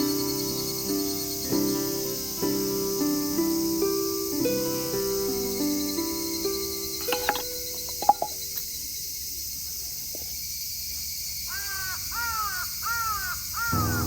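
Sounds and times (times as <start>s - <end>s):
crow cawing: 11.5s - 14.0s.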